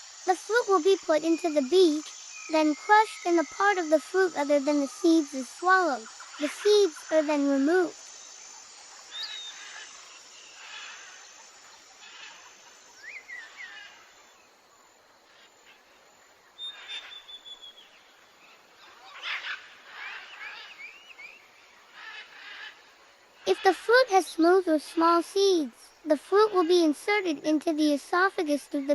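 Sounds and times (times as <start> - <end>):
birds chirping and whistling: 0.0 - 13.8, 16.6 - 18.1, 18.8 - 22.7
outdoor background hiss: 0.0 - 28.9.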